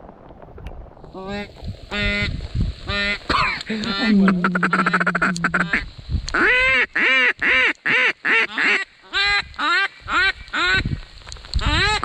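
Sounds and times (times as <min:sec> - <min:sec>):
duck quacking: 0:03.0 - 0:05.8.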